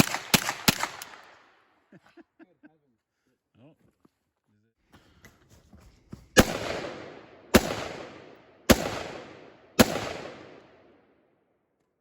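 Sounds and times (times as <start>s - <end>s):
gunshots with echo: 0.0s - 1.4s, 6.4s - 11.0s.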